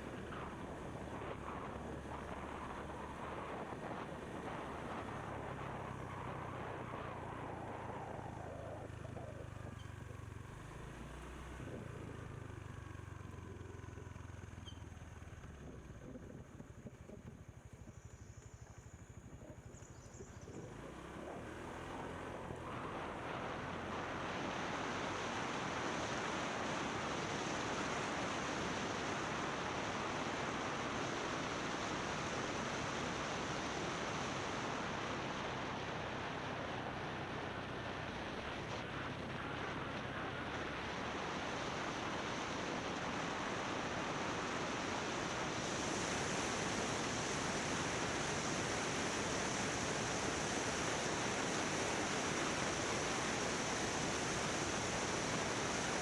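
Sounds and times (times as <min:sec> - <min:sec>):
wind rush on microphone: 0:00.0 - 0:09.8
motorbike engine hum: 0:00.0 - 0:56.0.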